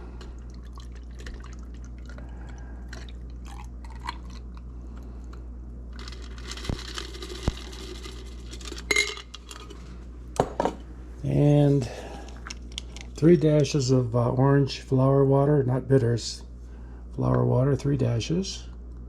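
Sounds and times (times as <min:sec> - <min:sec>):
drink pouring: 0:00.2 - 0:04.6.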